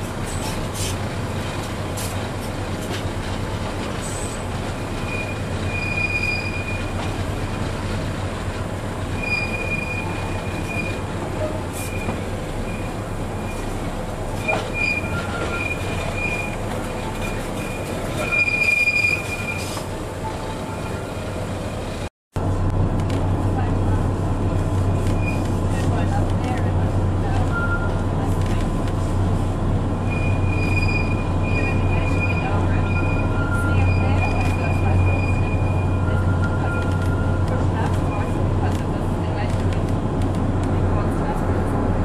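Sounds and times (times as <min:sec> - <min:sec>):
train running with low rumble: 0:00.0 - 0:42.0
train wheels squealing: 0:04.0 - 0:07.0, 0:09.1 - 0:11.0, 0:11.8 - 0:13.7, 0:14.4 - 0:19.8, 0:30.0 - 0:37.5.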